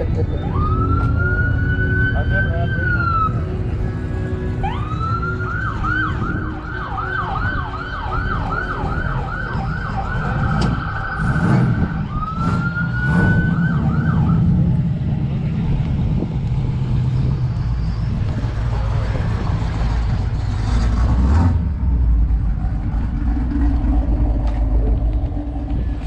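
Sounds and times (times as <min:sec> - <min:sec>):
siren warbling: 0:00.0 - 0:14.6
heavy low rumble: 0:00.0 - 0:26.0.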